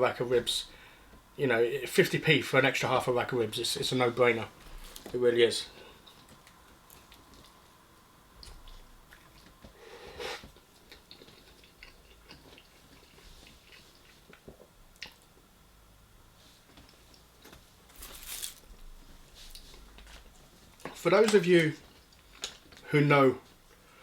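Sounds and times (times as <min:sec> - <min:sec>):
chewing food: 0:06.0 - 0:07.8, 0:08.4 - 0:09.8, 0:10.4 - 0:15.4.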